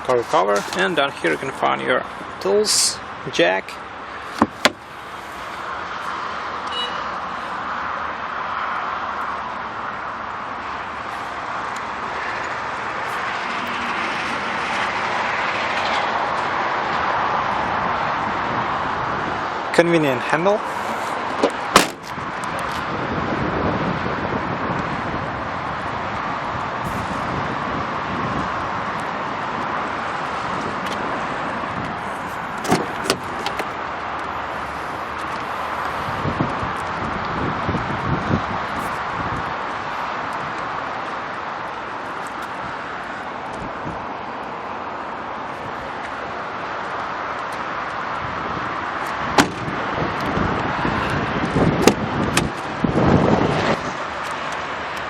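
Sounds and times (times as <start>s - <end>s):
outdoor background noise: 0.0s - 55.0s
traffic: 0.0s - 55.0s
sharp clicks and knocks: 4.4s - 4.8s, 32.6s - 33.8s
wind noise: 20.6s - 41.1s, 42.0s - 46.6s, 47.4s - 55.0s.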